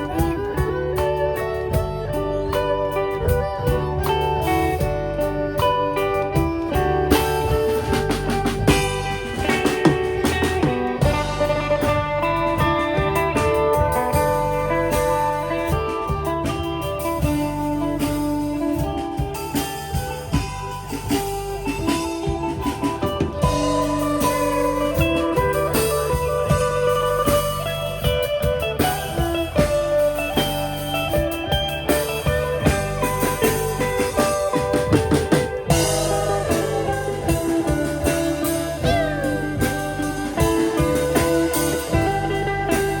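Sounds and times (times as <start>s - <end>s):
blues guitar music: 0.0s - 43.0s.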